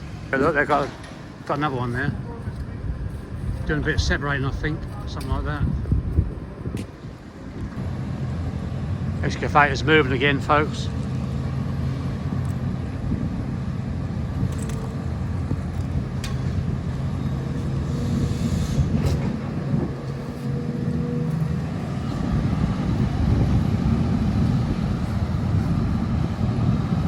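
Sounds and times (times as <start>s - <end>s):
excavator diesel engine running: 7.2s - 27.0s.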